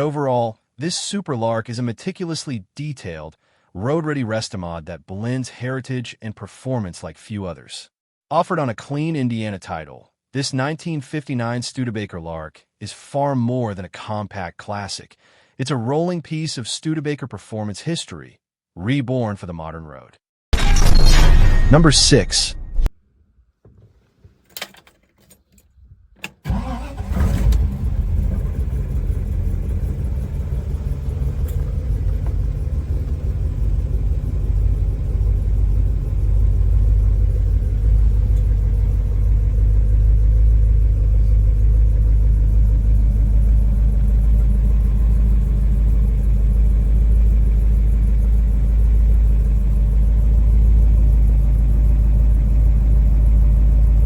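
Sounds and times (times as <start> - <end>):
car engine starting and rumbling: 24.6 - 54.0.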